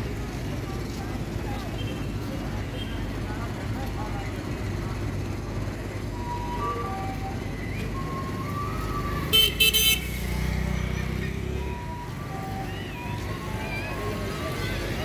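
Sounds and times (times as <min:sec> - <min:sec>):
vehicle engine humming: 0:00.0 - 0:15.0
horn blasts: 0:09.3 - 0:10.4.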